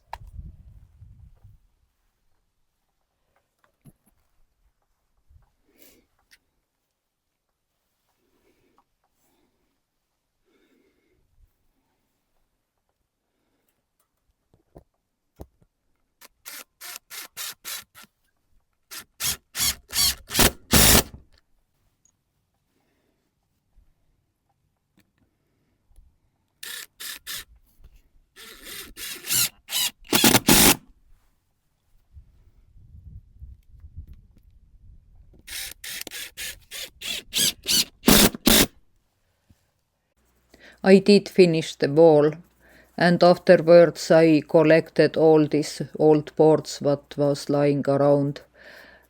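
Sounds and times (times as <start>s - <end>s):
hand tool rasping strokes: 16.4s - 18.1s, 18.9s - 21.2s, 26.6s - 27.5s, 28.4s - 30.8s, 35.5s - 38.7s.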